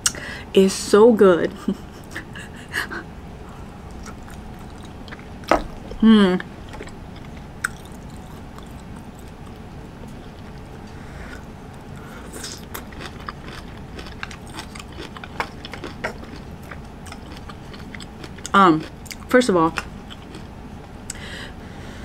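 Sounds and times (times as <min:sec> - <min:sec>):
steady low hum: 0:00.0 - 0:22.0
person biting and chewing cabbage: 0:03.7 - 0:20.5.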